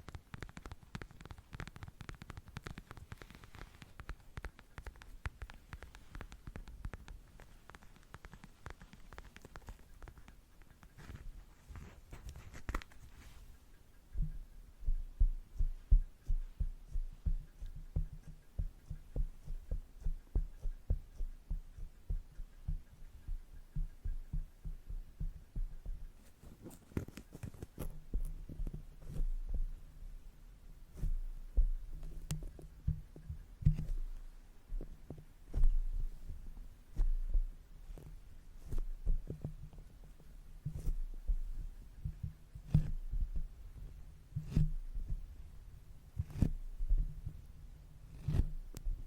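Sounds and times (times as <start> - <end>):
sharp clicks: 0.0 - 11.1
brush tapping on microphone: 0.0 - 29.9, 30.9 - 45.3.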